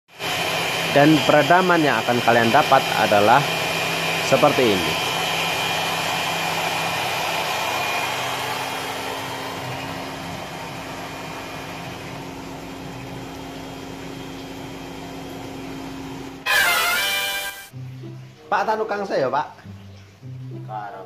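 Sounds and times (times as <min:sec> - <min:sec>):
table saw running: 0:00.1 - 0:15.4, 0:16.4 - 0:17.7.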